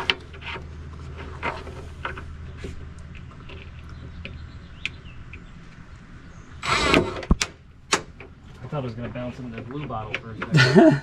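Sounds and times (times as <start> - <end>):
low steady hum: 0.0 - 11.0
screws and boards clicking: 6.6 - 8.3.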